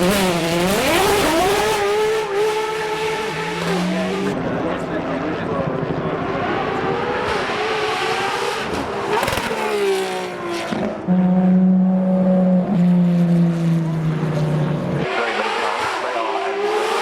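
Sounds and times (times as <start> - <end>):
car engine droning: 0.0 - 17.0.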